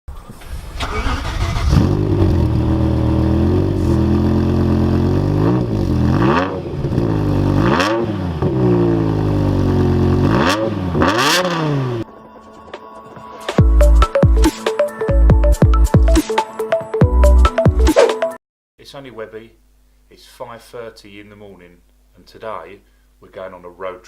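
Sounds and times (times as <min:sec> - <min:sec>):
car engine revving: 0:00.5 - 0:12.1.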